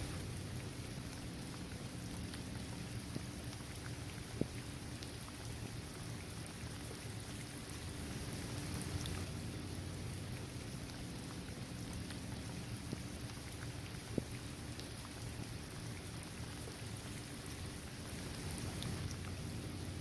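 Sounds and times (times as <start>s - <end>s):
raindrops ticking: 0.0s - 6.5s, 17.5s - 20.0s
rain on pavement: 18.0s - 20.0s.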